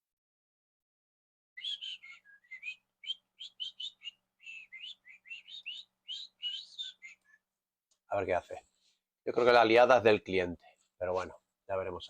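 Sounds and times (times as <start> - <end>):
person whistling a tune: 1.6 - 7.2.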